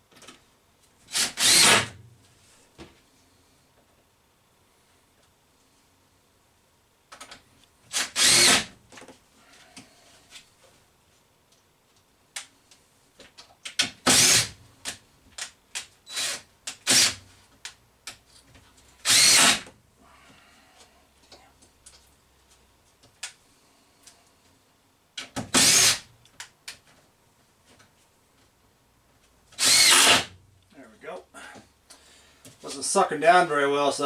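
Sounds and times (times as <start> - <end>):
power drill driving screws: 1.1 - 1.9, 7.9 - 8.8, 14.0 - 14.6, 16.1 - 17.2, 19.0 - 19.7, 25.5 - 26.1, 29.6 - 30.3.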